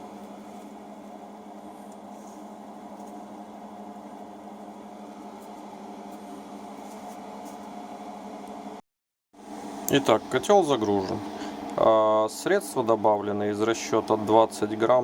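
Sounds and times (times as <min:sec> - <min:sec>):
machine hum with low drone: 0:00.0 - 0:08.8.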